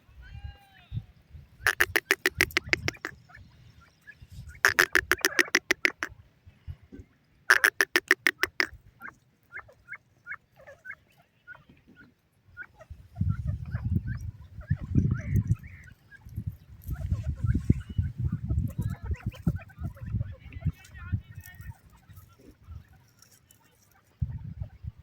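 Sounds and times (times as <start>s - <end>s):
game bird harsh repeated notes: 1.7s - 3.1s, 4.6s - 6.1s, 7.5s - 8.7s
chicks peeping: 1.7s - 3.4s, 4.1s - 6.1s, 7.5s - 21.0s.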